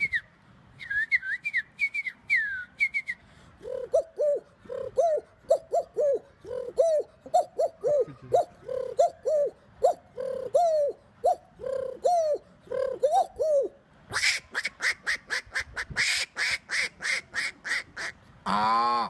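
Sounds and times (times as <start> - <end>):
man whistling bird calls: 0.0 - 14.7
man making quacking calls: 14.1 - 19.0.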